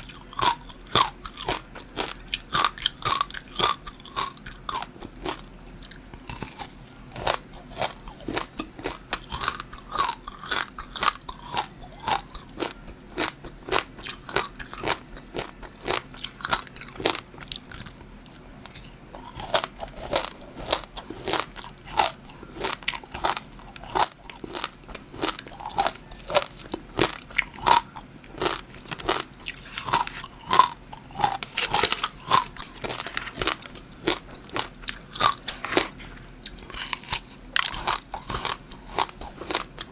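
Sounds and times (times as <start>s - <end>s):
crunchy bites and chewing: 0.0s - 39.9s.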